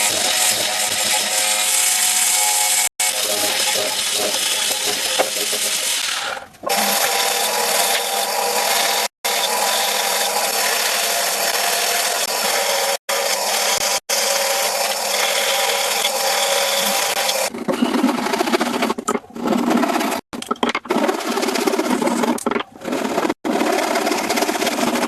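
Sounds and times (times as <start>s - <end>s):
power tool cutting wood: 0.0s - 18.4s.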